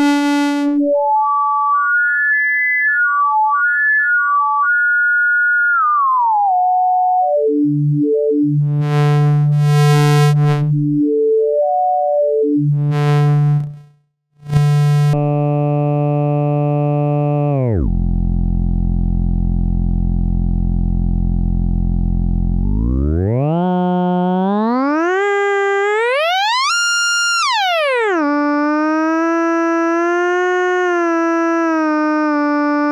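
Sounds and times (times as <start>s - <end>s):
synth oscillator notes: 0.0s - 1.1s, 7.2s - 13.8s, 14.5s - 15.8s, 21.6s - 32.9s.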